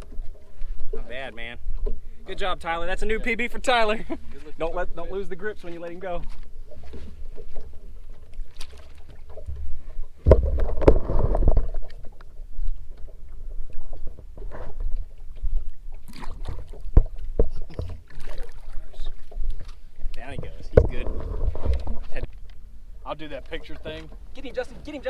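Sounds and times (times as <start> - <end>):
knocks and bumps on a boat: 4.7 - 25.0.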